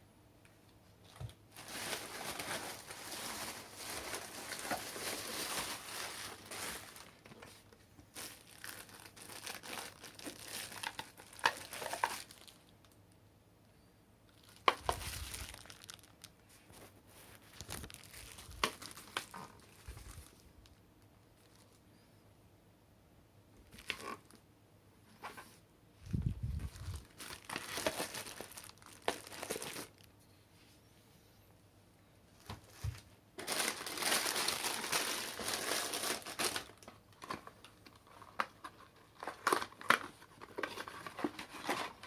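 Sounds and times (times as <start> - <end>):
plastic packaging crinkling: 1.1 - 13.0, 14.3 - 20.8, 21.4 - 21.8, 23.6 - 24.4, 26.1 - 30.1, 32.4 - 42.0.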